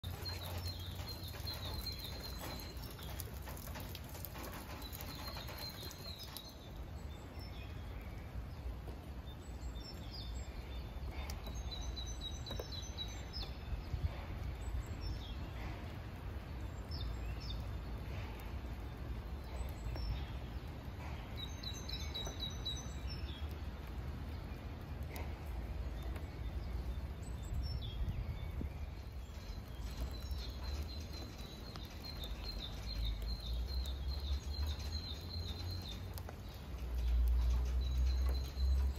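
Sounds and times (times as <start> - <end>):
low outdoor rumble: 0.0 - 38.9
small birds chirping: 0.0 - 38.9.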